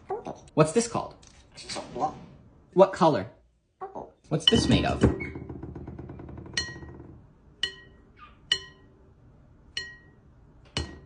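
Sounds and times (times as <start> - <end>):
glass object tapped ringing: 7.6 - 9.0, 9.8 - 10.2.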